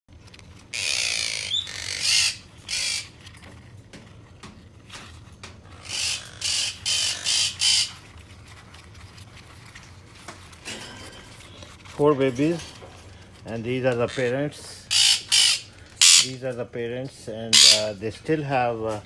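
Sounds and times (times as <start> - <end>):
parrots squawking: 0.7 - 3.2, 5.8 - 8.1, 14.0 - 16.4, 17.5 - 18.0.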